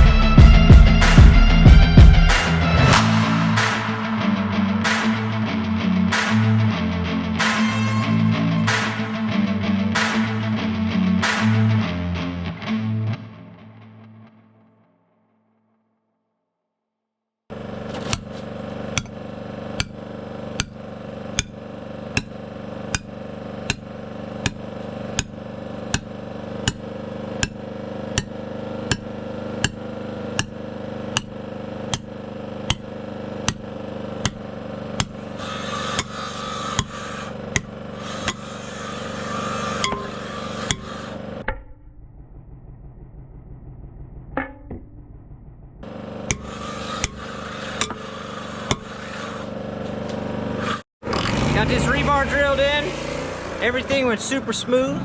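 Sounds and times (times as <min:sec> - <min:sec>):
engine hum: 0:00.0 - 0:12.5, 0:17.5 - 0:55.0
hammer striking rebar: 0:02.3 - 0:05.2, 0:07.4 - 0:09.2, 0:17.8 - 0:41.7, 0:45.8 - 0:49.6.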